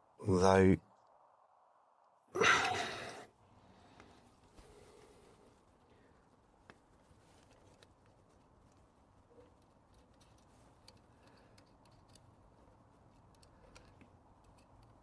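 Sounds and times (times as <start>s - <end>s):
faint small clicks: 7.4s - 15.0s.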